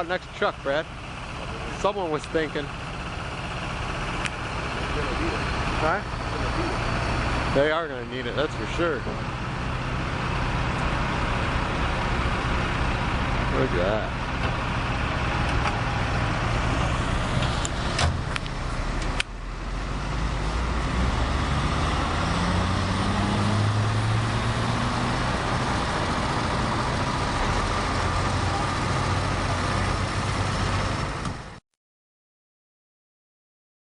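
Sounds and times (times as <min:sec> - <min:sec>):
diesel truck engine: 0:00.0 - 0:31.6.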